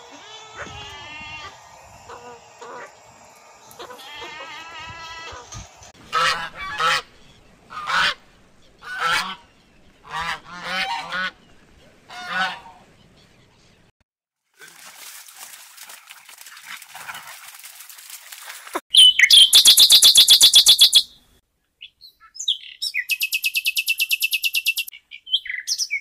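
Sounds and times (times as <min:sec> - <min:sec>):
swans honking: 0:00.0 - 0:11.4, 0:12.0 - 0:12.9
goat bleating: 0:03.8 - 0:05.5.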